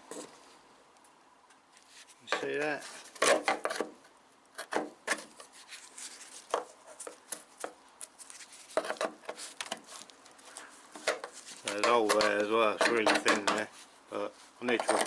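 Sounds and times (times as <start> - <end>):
hand tool scraping body filler: 2.4 - 4.0, 11.0 - 13.7, 14.6 - 15.0
tool tapping and knocking: 11.0 - 13.7.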